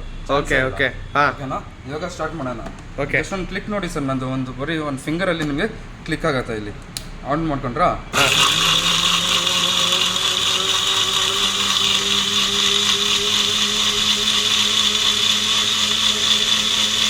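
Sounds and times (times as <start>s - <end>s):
blender motor running: 8.1s - 17.0s.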